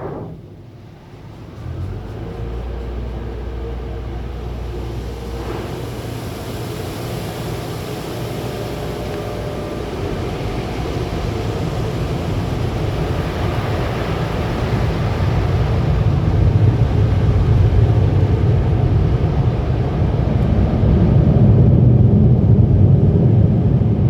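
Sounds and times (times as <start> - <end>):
hissing rush: 0.0 - 0.8
low mechanical hum: 0.0 - 24.0.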